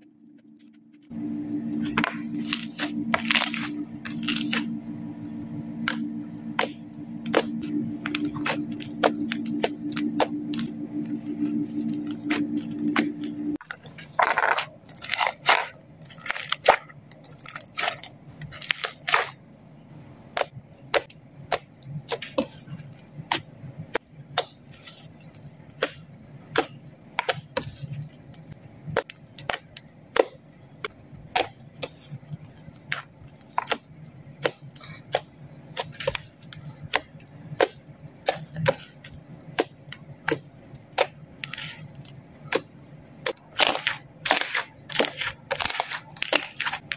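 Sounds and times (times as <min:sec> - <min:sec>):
slime clicking and popping: 0:31.3 - 0:46.9.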